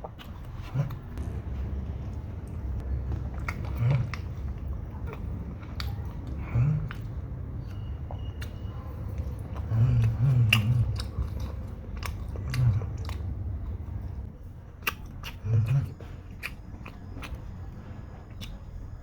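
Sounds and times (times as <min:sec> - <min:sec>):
chewing crispy chicken: 0:00.0 - 0:19.0.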